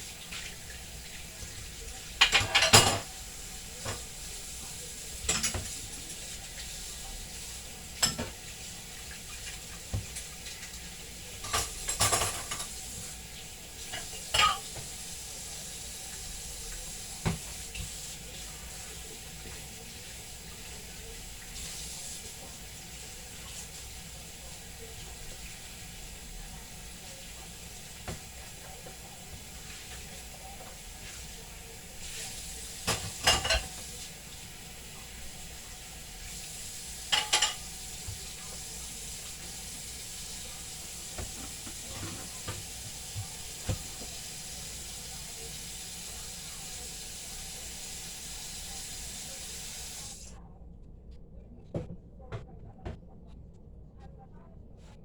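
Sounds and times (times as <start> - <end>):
dishes and cutlery clattering: 2.2 - 3.2, 5.2 - 5.9, 7.9 - 8.4, 11.4 - 12.9, 13.8 - 14.9, 32.8 - 34.1, 37.1 - 38.3.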